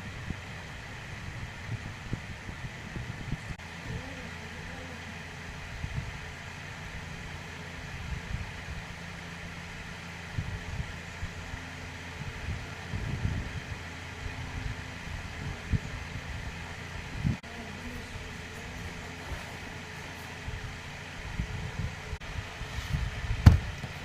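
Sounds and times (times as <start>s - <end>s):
mechanical hum: 0.0s - 24.0s
soft low thumps: 22.9s - 24.0s.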